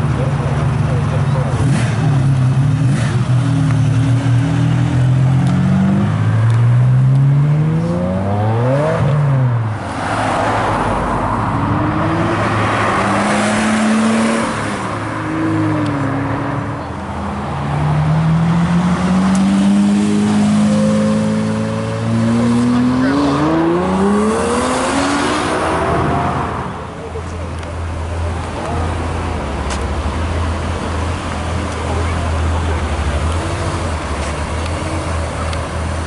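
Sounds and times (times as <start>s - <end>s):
sports car engine revving: 0.2s - 36.0s
sports car engine rising in pitch: 2.8s - 26.8s.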